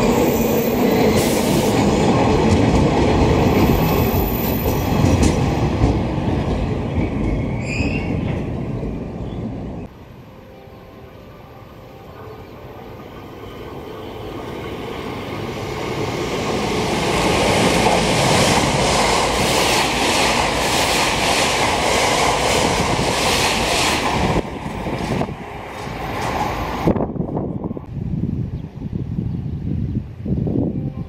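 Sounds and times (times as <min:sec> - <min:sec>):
electric train passing at speed: 0:00.0 - 0:31.0
clatter of train cars: 0:01.2 - 0:08.9.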